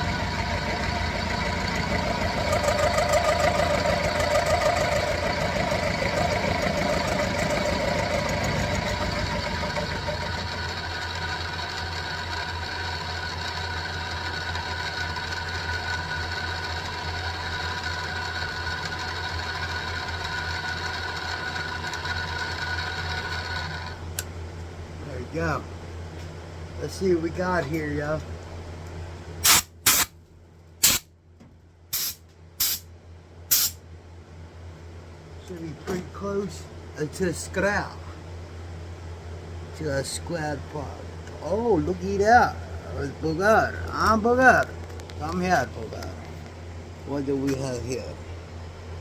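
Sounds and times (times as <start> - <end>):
milling machine humming: 0.0 - 28.4.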